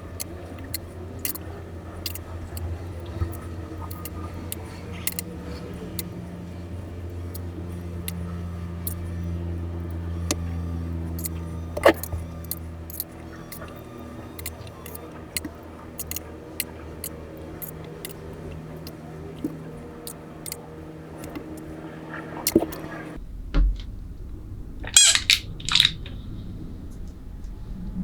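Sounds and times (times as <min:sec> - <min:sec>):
plastic toy parts clicking: 0:00.0 - 0:05.3, 0:11.2 - 0:18.2, 0:21.2 - 0:21.7, 0:22.5 - 0:22.8, 0:24.9 - 0:26.1
steady low hum: 0:00.0 - 0:28.0.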